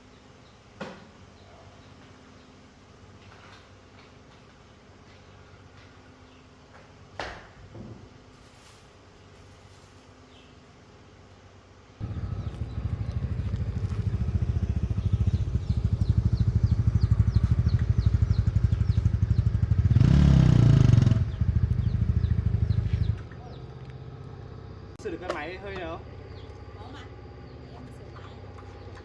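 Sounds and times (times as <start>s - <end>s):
small motorbike engine running: 12.0s - 24.9s.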